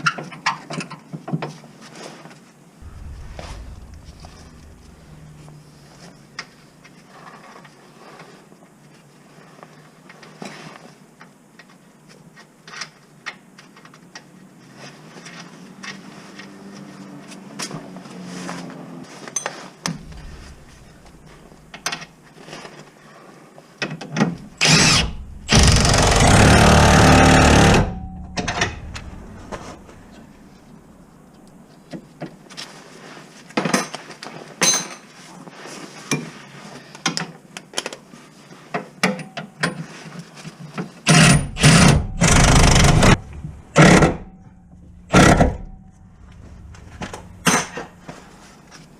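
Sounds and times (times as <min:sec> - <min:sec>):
power tool running: 0:24.5 - 0:30.4, 0:41.1 - 0:44.3, 0:45.1 - 0:47.9.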